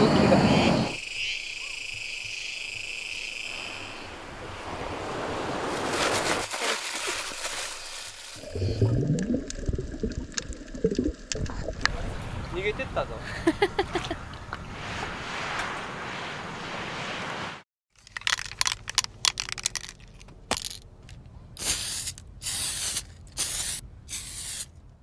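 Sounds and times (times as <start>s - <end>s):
sea surf: 0.0s - 1.0s, 3.2s - 6.6s, 11.9s - 17.6s
wind noise: 3.5s - 6.4s, 11.4s - 17.6s.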